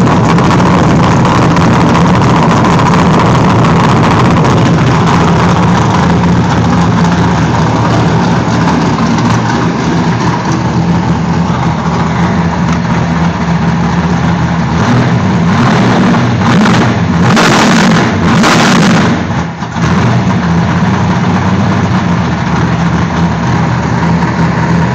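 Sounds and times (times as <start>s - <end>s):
car engine running loudly: 0.0s - 24.9s.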